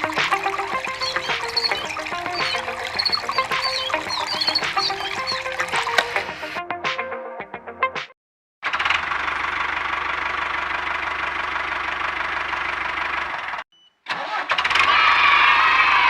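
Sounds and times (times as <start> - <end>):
engine running: 8.7 - 13.6.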